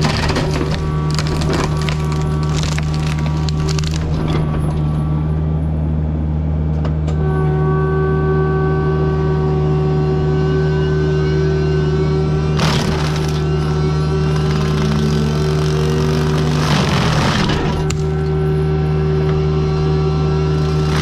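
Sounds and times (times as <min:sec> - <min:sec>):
diesel engine under load: 0:00.0 - 0:06.2, 0:12.3 - 0:21.0
mulcher drum whine: 0:08.8 - 0:21.0.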